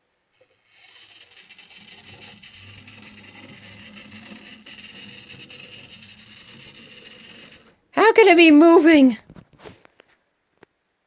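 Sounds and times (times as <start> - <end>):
small electric motor whirring: 0.4 - 7.8.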